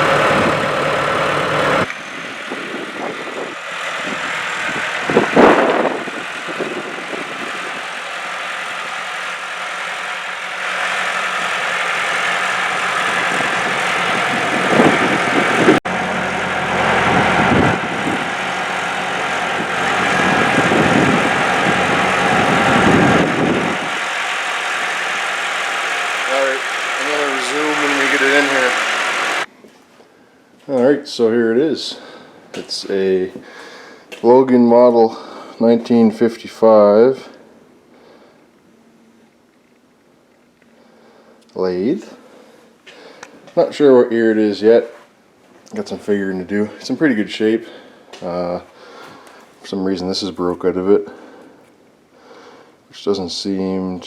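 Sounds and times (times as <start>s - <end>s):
forklift engine running: 0.0s - 29.5s.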